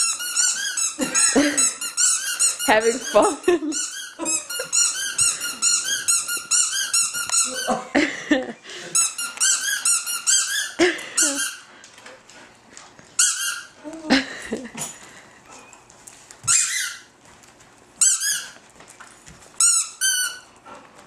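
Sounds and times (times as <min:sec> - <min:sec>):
squeaky dog toy squeaking: 0:00.0 - 0:07.8, 0:09.0 - 0:11.6, 0:13.2 - 0:13.8, 0:16.5 - 0:17.1, 0:18.0 - 0:18.6, 0:19.6 - 0:20.5.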